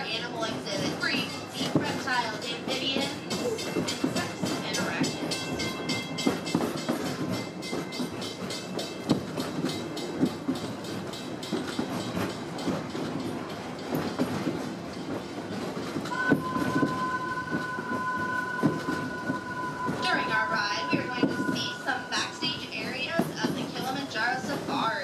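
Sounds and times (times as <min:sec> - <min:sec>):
train rumbling on track: 0:00.0 - 0:25.0
wheels clacking over rails: 0:00.0 - 0:25.0
two-tone locomotive whistle: 0:16.1 - 0:22.9.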